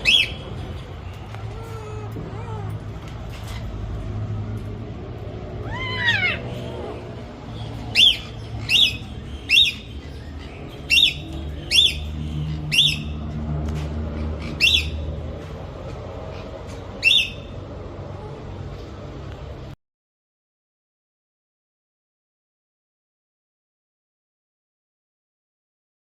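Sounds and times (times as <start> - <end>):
bird squawking: 5.6 - 6.8, 7.6 - 13.2.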